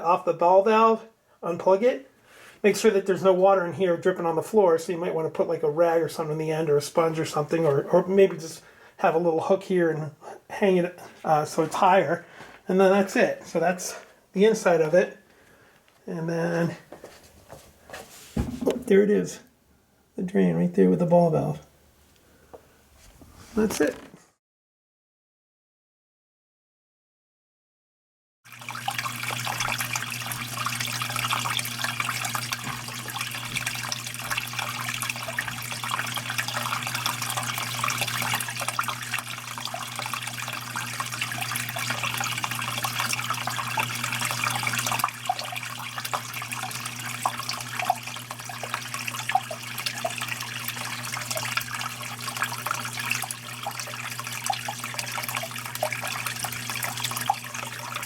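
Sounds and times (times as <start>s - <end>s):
water falling and trickling: 28.5s - 58.0s.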